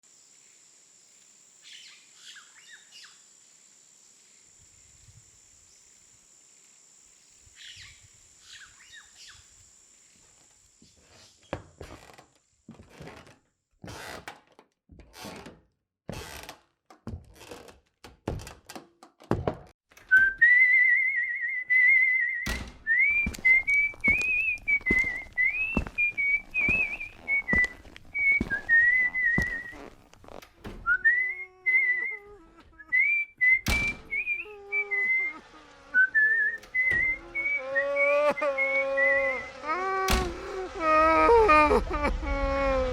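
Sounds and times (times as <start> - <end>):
person whistling a tune: 20.1 - 29.8, 30.9 - 35.4, 36.0 - 39.4
slow footsteps: 22.9 - 33.0.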